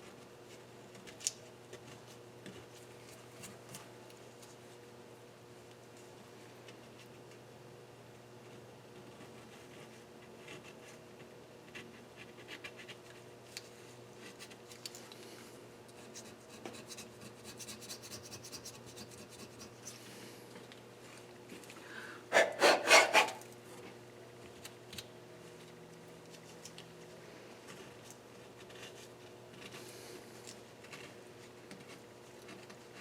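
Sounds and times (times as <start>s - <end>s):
scraping and scrubbing metal: 22.3s - 23.4s.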